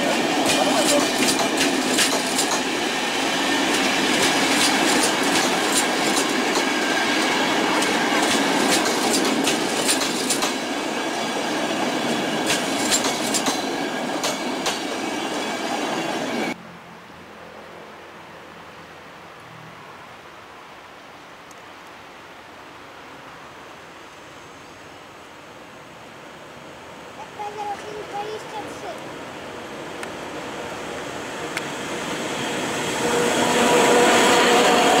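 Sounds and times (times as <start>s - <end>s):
wheels clacking over rail joints: 0.0s - 16.5s
train coaches rumbling: 0.0s - 16.6s, 27.1s - 35.0s.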